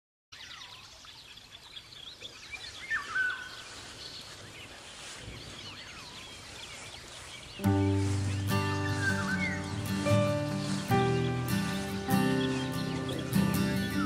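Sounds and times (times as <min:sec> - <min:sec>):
birds chirping and whistling: 0:00.4 - 0:14.0.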